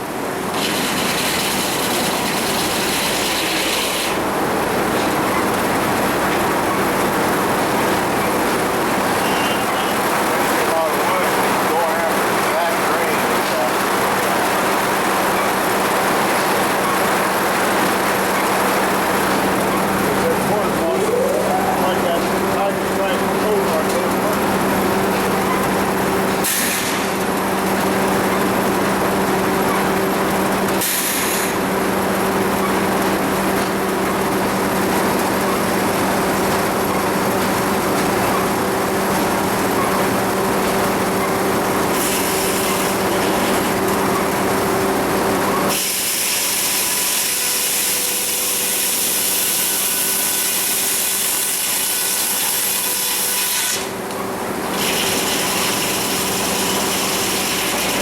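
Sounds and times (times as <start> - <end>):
saw cutting log: 0.5 - 4.3, 26.4 - 27.3, 30.8 - 31.8, 41.9 - 43.8, 45.7 - 54.0, 54.7 - 58.0.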